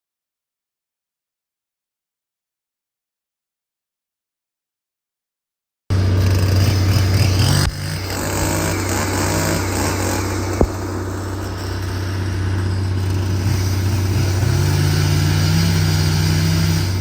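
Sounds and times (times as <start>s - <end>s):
diesel engine idling: 5.9s - 17.0s.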